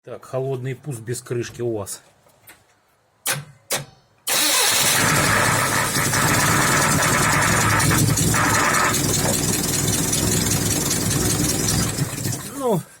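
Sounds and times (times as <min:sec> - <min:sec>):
engine cold-starting and idling: 0:04.3 - 0:12.7.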